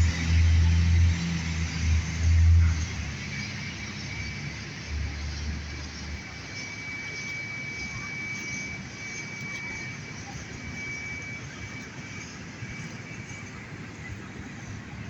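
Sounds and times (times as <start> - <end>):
fire engine rumbling: 0.0 - 6.5.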